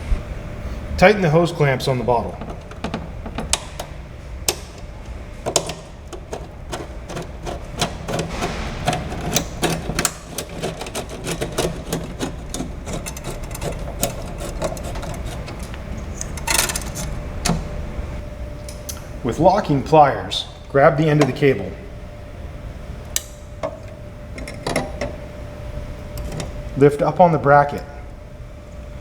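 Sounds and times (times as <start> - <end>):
metallic rattle: 2.1 - 17.8
hose clamp ratcheting clicks: 2.3 - 17.7.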